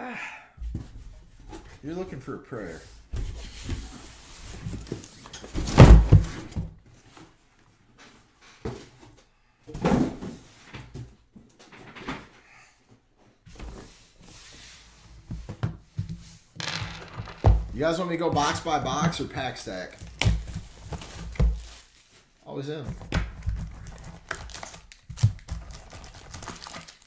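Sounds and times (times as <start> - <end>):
box thumping on table: 16.6 - 17.8
packaging rustling: 19.2 - 22.4, 23.3 - 27.0.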